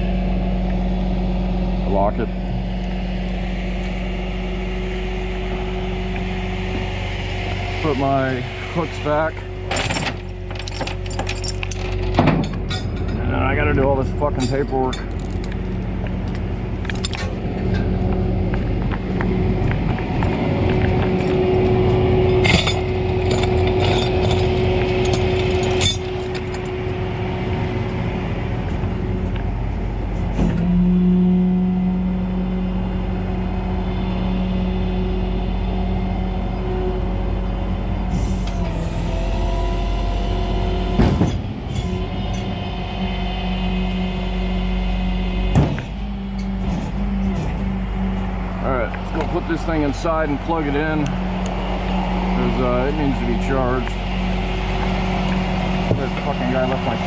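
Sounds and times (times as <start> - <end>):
truck engine running: 0.0 - 57.0.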